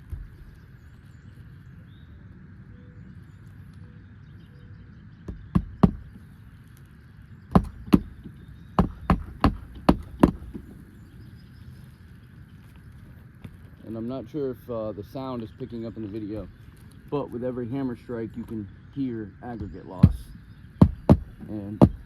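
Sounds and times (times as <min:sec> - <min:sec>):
hammer striking roofing nails: 0:05.3 - 0:06.1, 0:07.5 - 0:10.7, 0:19.6 - 0:22.0.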